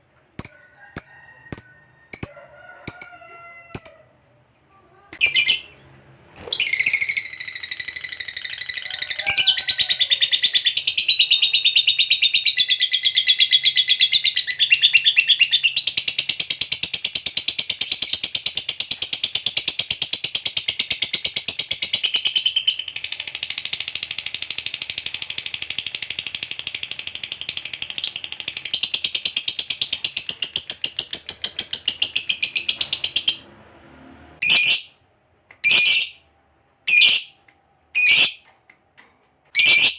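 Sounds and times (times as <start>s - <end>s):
bird rapid high-pitched chattering: 6.6s - 33.4s.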